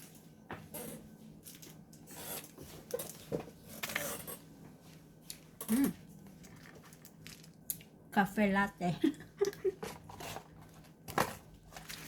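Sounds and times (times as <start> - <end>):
candy packaging rustling: 6.2 - 7.8, 9.8 - 12.0.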